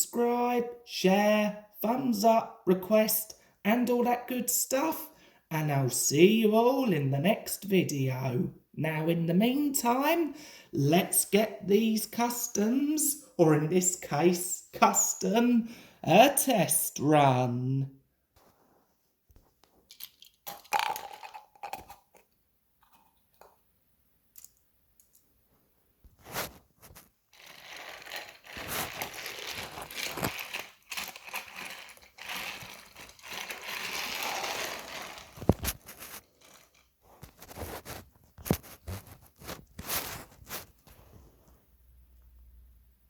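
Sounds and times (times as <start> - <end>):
toy train rattling on track: 27.4 - 36.9.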